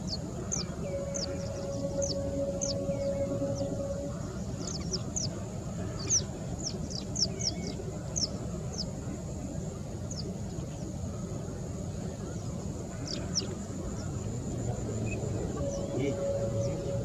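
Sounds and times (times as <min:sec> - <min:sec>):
birds calling: 0:00.0 - 0:08.9, 0:15.0 - 0:17.0
steady hum: 0:00.0 - 0:17.0.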